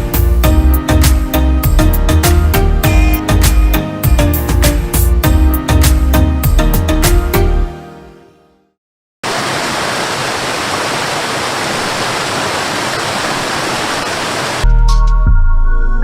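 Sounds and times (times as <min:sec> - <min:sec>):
music with heavy bass: 0:00.0 - 0:07.6
waterfall rushing: 0:09.2 - 0:14.6.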